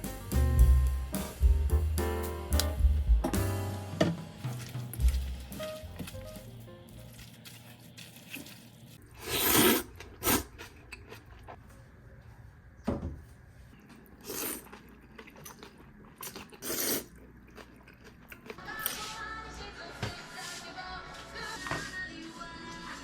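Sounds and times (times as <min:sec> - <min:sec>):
kitchen scraping and rustling: 0:03.3 - 0:09.9.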